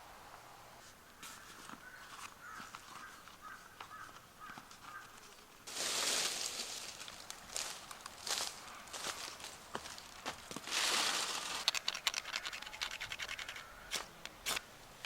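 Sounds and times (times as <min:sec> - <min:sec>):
loud rustling: 0:10.4 - 0:14.6
ticks and clicks: 0:11.6 - 0:14.6.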